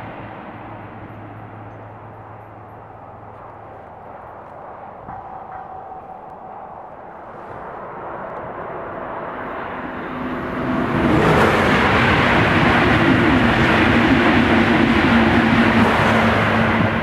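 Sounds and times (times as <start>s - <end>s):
low hum: 0.0s - 10.9s
train rushing past: 0.0s - 17.0s.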